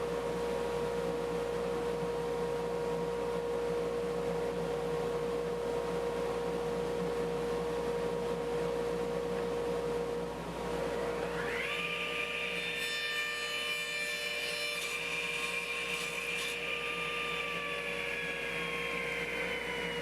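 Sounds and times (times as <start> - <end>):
power tool motor whine: 10.7 - 20.0.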